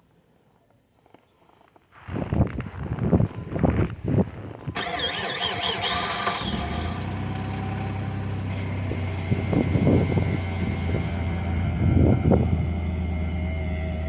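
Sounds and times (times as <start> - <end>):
engine cranking and idling: 4.8 - 14.0
high-pitched engine squeal: 4.8 - 14.0.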